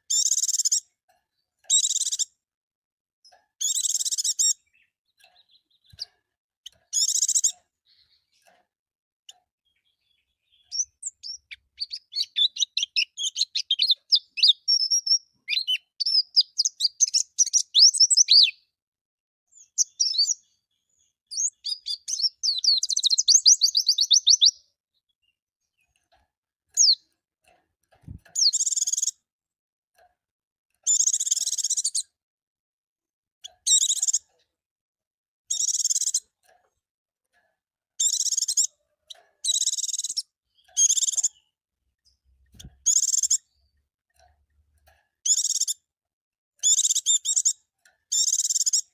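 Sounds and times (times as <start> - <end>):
bird high twittering trills: 9.8 - 18.6, 19.6 - 20.5, 21.3 - 24.7, 26.8 - 27.0, 28.1 - 29.1, 39.4 - 41.4, 42.6 - 43.4.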